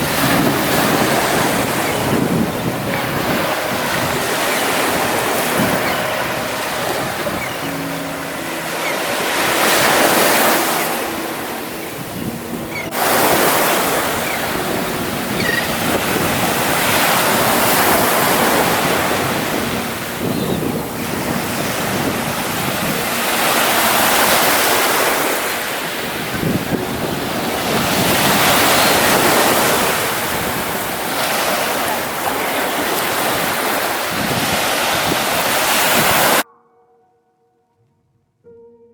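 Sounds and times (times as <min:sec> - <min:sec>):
ocean surf breaking: 0:00.0 - 0:36.4
wind buffeting microphone: 0:00.0 - 0:36.4.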